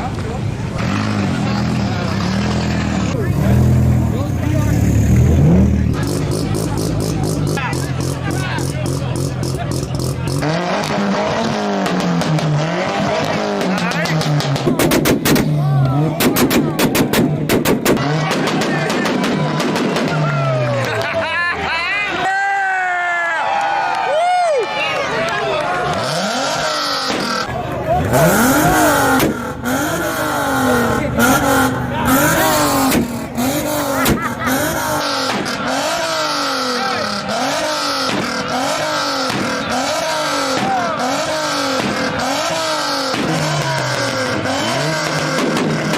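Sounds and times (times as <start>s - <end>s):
car engine revving: 0.0s - 21.2s, 25.8s - 45.9s
exhaust cracks: 0.0s - 21.2s, 25.8s - 45.9s
exhaust pops and bangs: 13.2s - 21.1s, 32.8s - 33.3s, 38.0s - 45.9s.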